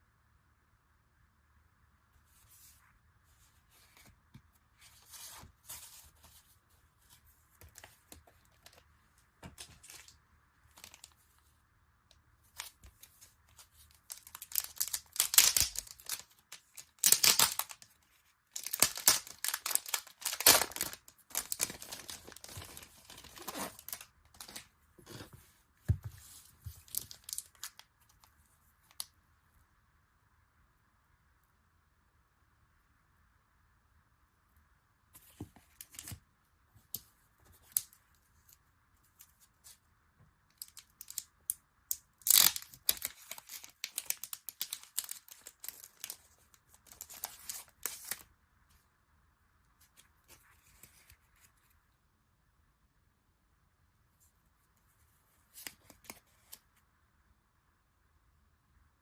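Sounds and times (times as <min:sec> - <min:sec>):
packaging tearing and crinkling: 0:14.0 - 0:17.9, 0:18.5 - 0:24.6, 0:42.2 - 0:46.3.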